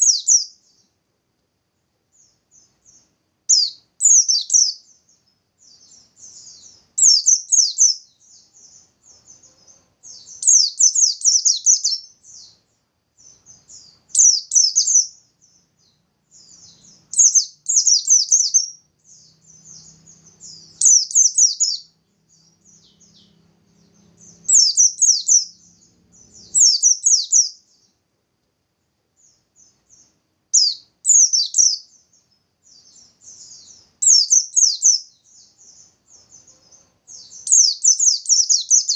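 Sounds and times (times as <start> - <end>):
bird trilling song: 0.0 - 1.0, 2.1 - 28.0, 29.2 - 38.9
soft bird twittering: 0.0 - 1.0, 2.1 - 28.0, 29.2 - 38.9.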